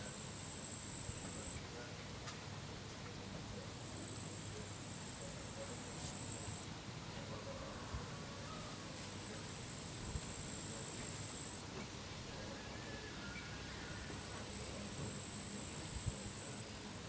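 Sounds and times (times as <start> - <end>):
cricket trilling: 0.0 - 1.6, 3.9 - 6.7, 9.2 - 11.6, 14.1 - 16.9.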